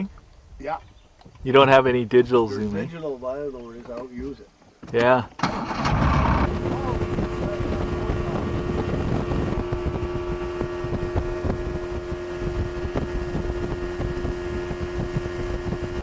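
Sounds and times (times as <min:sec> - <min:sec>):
outboard motor running: 0:05.4 - 0:16.0
wind buffeting microphone: 0:05.4 - 0:16.0.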